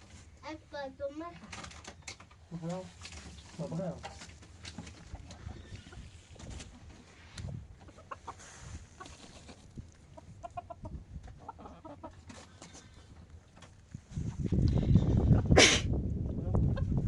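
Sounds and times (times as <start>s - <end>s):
chickens clucking: 3.3s - 13.8s.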